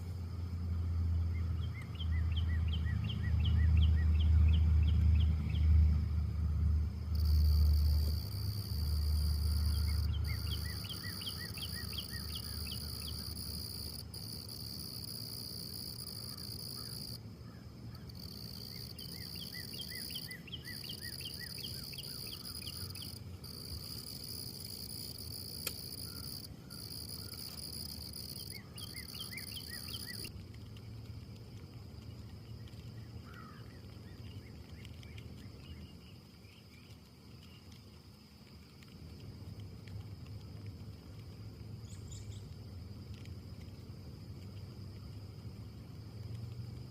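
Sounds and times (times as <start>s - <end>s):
bird chirping: 1.3s - 5.7s, 7.2s - 14.4s, 17.9s - 24.0s, 25.8s - 30.3s
insect trilling: 7.1s - 17.2s, 17.9s - 30.3s.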